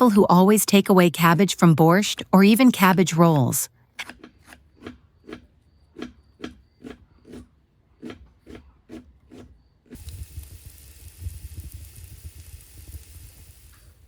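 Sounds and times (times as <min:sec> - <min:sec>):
knife chopping on wooden board: 0:06.0 - 0:09.5
steady hiss: 0:10.0 - 0:14.0.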